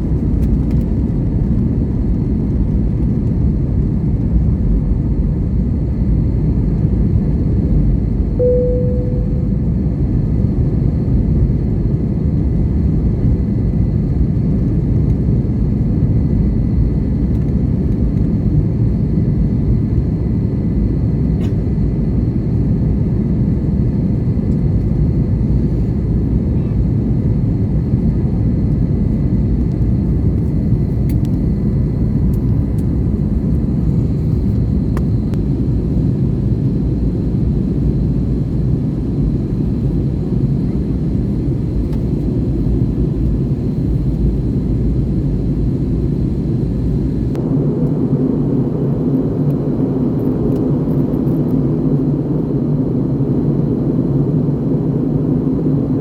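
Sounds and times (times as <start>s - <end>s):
airplane cabin engine and airflow noise: 0.0s - 56.0s.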